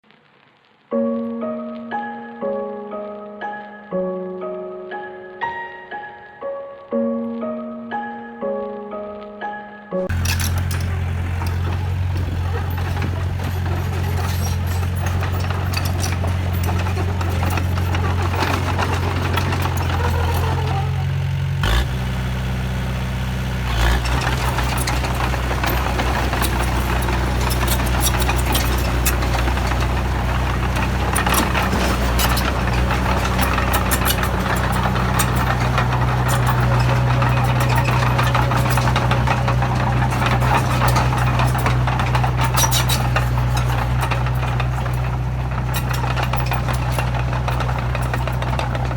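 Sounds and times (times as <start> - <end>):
truck engine droning: 10.0 - 48.9
engine knock: 10.1 - 48.9
engine thump: 10.1 - 48.9.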